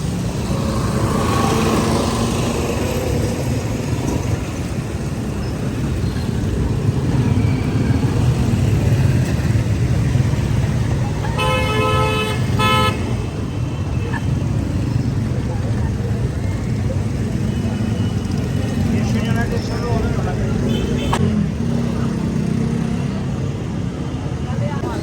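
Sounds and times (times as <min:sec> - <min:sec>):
roadside traffic rumble: 0:00.0 - 0:25.0
vehicle horn honking: 0:11.3 - 0:13.2.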